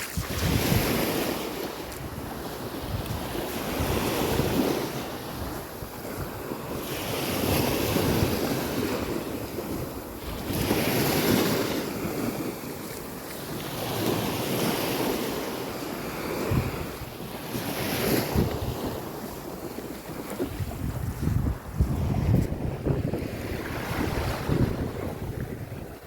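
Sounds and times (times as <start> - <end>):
wind buffeting microphone: 0.0 - 12.4, 16.0 - 26.0
sea waves breaking on beach: 0.0 - 26.0.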